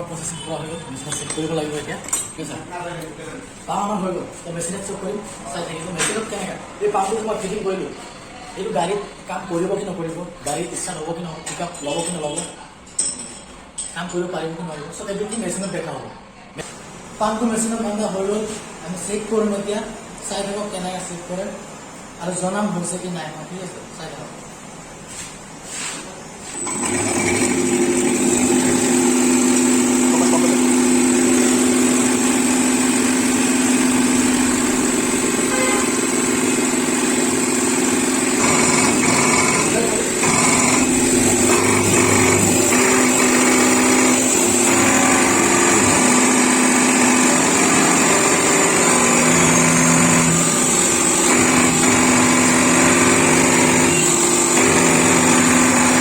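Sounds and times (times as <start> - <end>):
pump test bench humming: 26.4 - 56.0.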